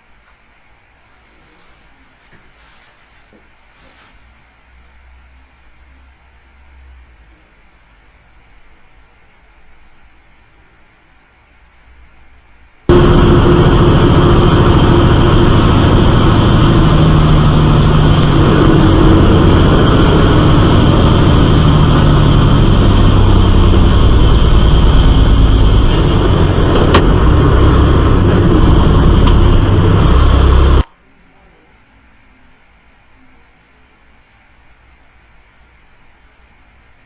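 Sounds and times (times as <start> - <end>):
vehicle engine and road noise: 12.9 - 30.9.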